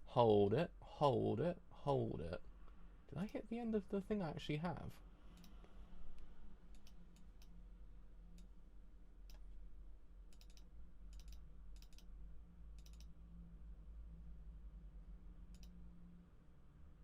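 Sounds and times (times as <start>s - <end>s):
low steady hum: 0.0s - 17.0s
computer mouse clicks: 5.3s - 7.6s, 9.2s - 9.5s, 10.3s - 12.1s, 12.8s - 13.2s, 15.5s - 15.8s.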